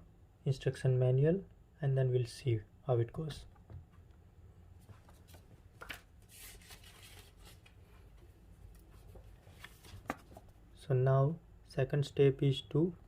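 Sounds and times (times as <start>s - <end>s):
paper rustling: 4.9s - 8.1s, 8.7s - 10.6s.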